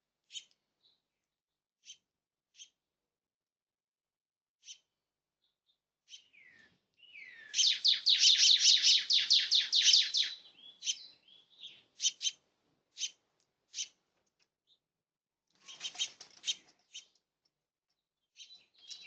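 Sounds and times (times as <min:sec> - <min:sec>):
bird chirping: 0:05.4 - 0:12.4, 0:18.2 - 0:19.0.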